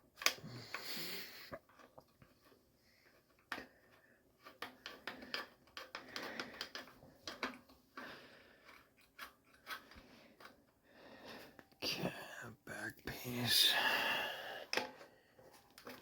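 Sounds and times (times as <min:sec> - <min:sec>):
hand tools clicking and tapping: 0:03.2 - 0:10.8.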